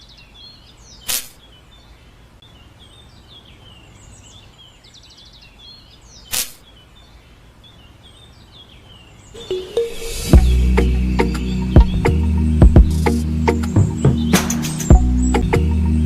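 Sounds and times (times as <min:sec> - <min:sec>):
small birds chirping: 0:00.0 - 0:16.0
loud whoosh: 0:09.6 - 0:16.0.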